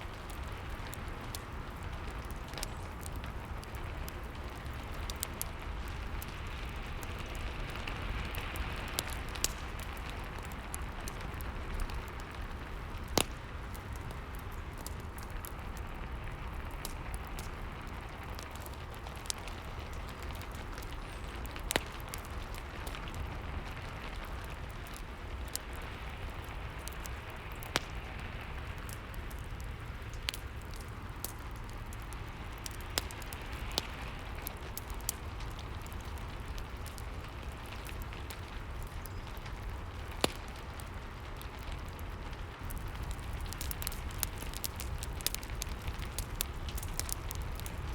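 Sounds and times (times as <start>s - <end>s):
fire crackling and popping: 0.0s - 47.9s
steady hiss of rain: 0.0s - 47.9s.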